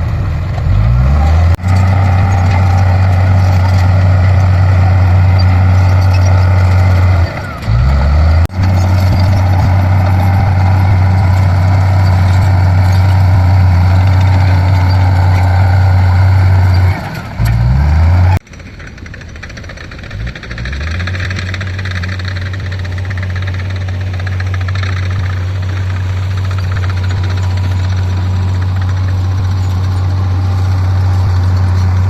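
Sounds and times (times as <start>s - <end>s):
heavy diesel engines droning: 0.0s - 32.0s.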